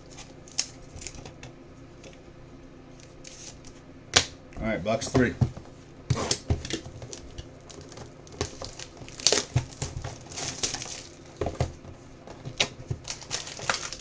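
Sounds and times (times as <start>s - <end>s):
plastic wrapping tearing and crinkling: 0.0s - 1.3s, 6.1s - 11.6s, 12.4s - 14.0s.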